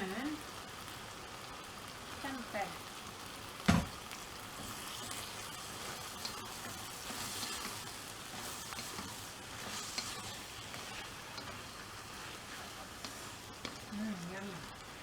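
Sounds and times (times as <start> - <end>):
stir fry sizzling in a pan: 0.0 - 15.0
light ticks of stirring: 4.1 - 15.0.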